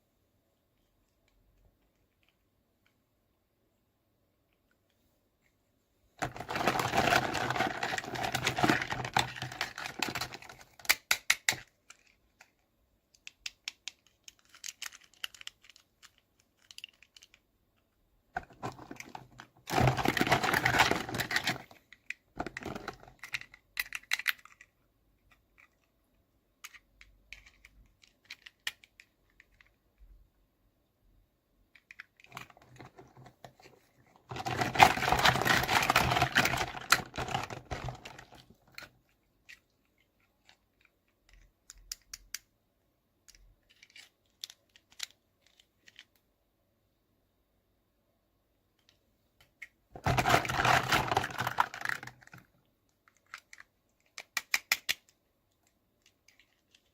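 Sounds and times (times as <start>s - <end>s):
packaging rustling and crinkling: 6.2s - 10.7s, 18.4s - 21.8s, 32.3s - 38.8s, 50.0s - 52.4s.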